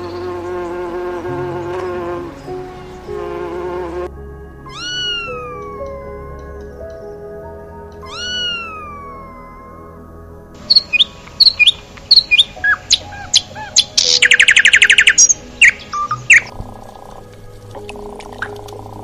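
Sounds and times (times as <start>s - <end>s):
bird calls and chirps: 4.7s - 10.0s, 10.6s - 19.0s.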